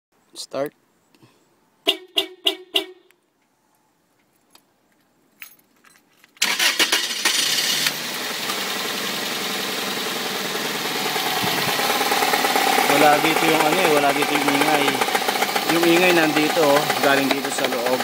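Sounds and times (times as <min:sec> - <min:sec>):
car engine cranking and starting: 0:06.4 - 0:18.0
car engine idling with knock: 0:08.4 - 0:18.0.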